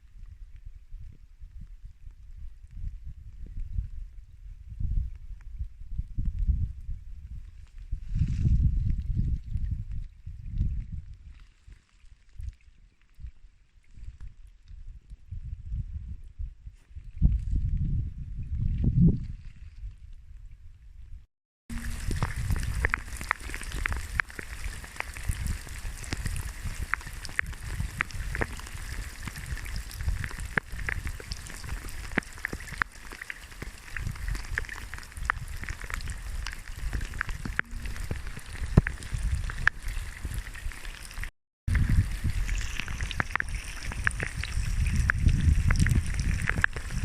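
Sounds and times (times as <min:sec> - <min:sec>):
wind rumble on microphone: 0:00.0 - 0:47.0
heavy rain drops ticking: 0:21.7 - 0:33.8.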